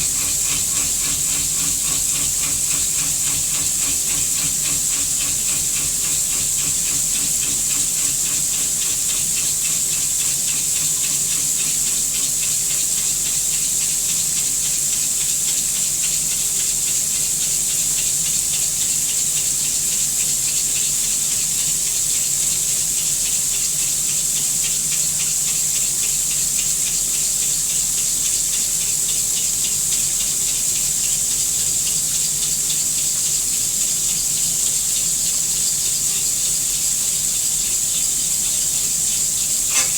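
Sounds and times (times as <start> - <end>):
milling machine whine: 0.0 - 12.9, 39.3 - 39.9
coolant spray rushing: 0.0 - 13.6, 38.1 - 39.9.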